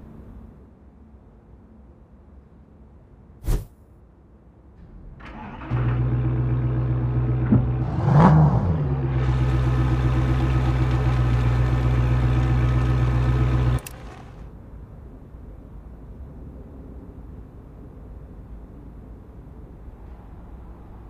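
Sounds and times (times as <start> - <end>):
car engine starting and idling: 4.8 - 14.5
engine revving: 5.2 - 14.5.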